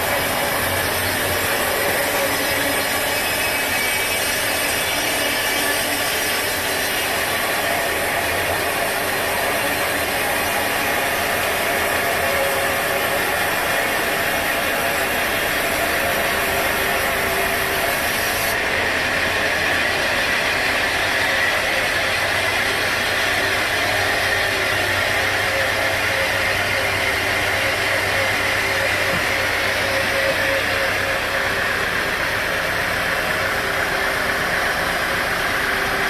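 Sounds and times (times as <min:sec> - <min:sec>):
sawmill machinery running: 0:00.0 - 0:36.0.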